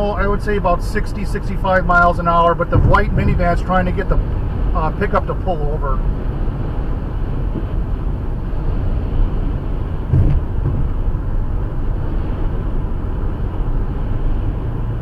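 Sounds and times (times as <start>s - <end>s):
car road and engine rumble: 0.0s - 15.0s
brief thump: 10.1s - 11.0s.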